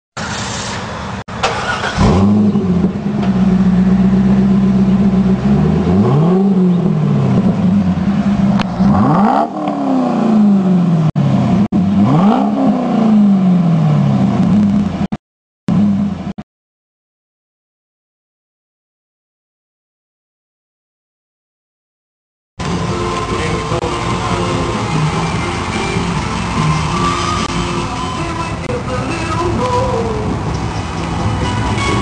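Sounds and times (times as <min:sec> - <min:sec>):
car engine starting and idling: 0:00.2 - 0:15.1, 0:22.6 - 0:32.0
car engine revving: 0:01.4 - 0:15.1, 0:22.6 - 0:32.0.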